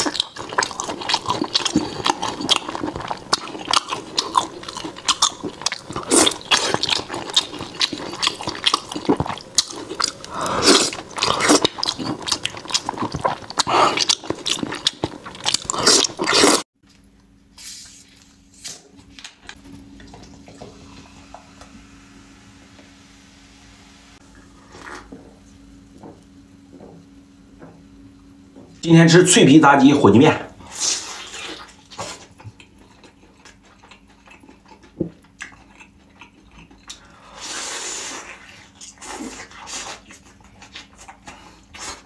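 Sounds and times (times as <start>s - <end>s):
wet chewing and slurping: 0.0s - 16.7s, 24.4s - 25.2s, 30.7s - 42.0s.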